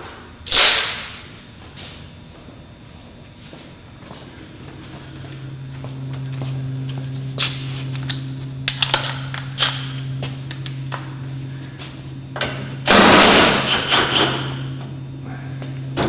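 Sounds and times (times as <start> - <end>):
low electrical hum: 0.0 - 16.0
loud rattling clatter: 12.4 - 14.5.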